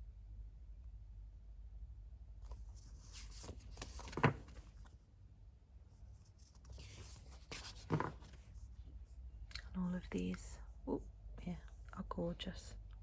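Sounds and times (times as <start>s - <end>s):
paper sheets rustling: 2.4s - 4.9s, 6.4s - 8.6s.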